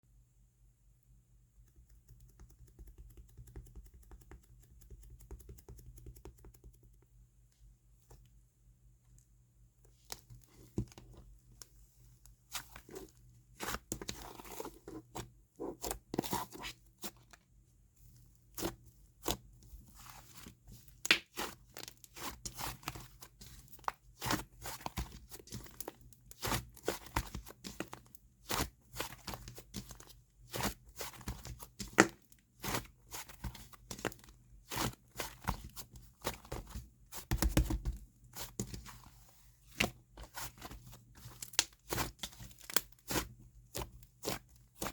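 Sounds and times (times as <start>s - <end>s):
clay slime popping and crackling: 20.9s - 38.9s, 39.8s - 44.9s.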